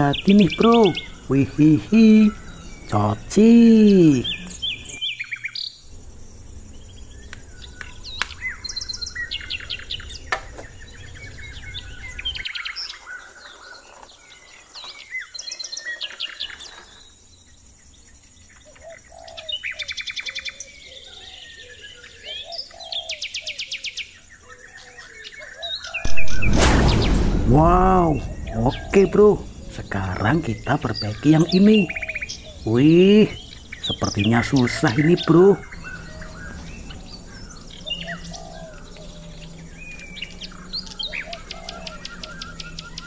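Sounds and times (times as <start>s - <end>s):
small birds chirping and trilling: 0.0s - 43.0s
low background rumble: 26.1s - 30.8s.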